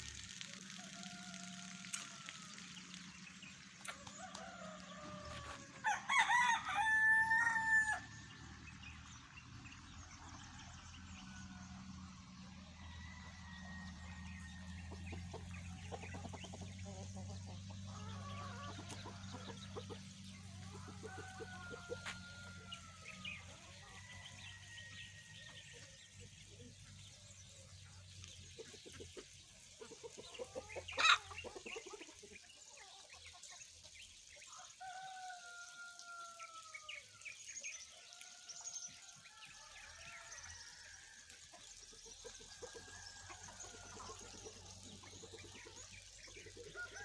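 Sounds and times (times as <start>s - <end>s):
rooster crowing: 4.1s - 8.3s, 20.7s - 25.6s.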